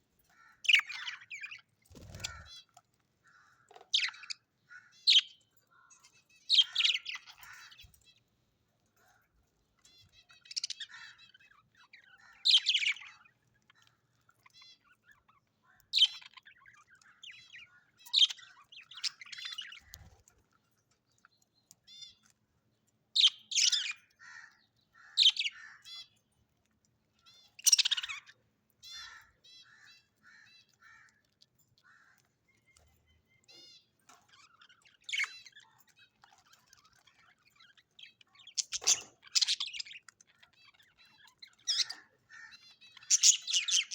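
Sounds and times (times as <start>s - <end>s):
parrots calling loudly: 0.3s - 2.7s, 23.2s - 26.2s, 27.3s - 31.2s, 40.7s - 43.9s
parrots chattering: 0.3s - 2.7s, 6.0s - 7.9s, 9.8s - 19.9s, 27.2s - 32.3s, 33.5s - 43.9s.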